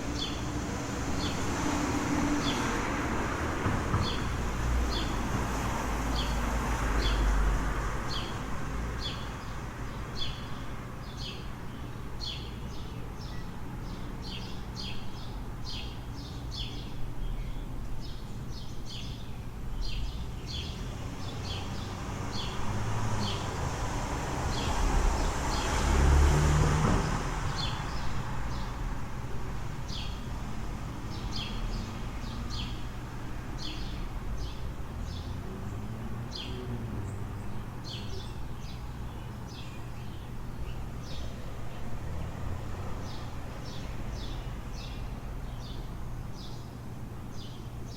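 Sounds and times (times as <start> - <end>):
vehicle passing: 0.0 - 9.1, 20.5 - 39.6, 40.2 - 45.8
low city rumble: 0.0 - 47.9
small birds chirping: 8.1 - 23.6, 27.6 - 47.9.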